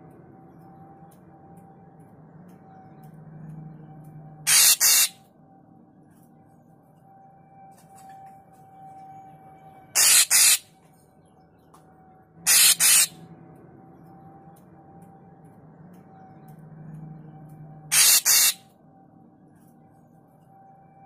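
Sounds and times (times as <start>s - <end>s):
bird harsh double calls: 4.5s - 5.2s, 10.0s - 10.6s, 12.5s - 13.1s, 17.9s - 18.6s.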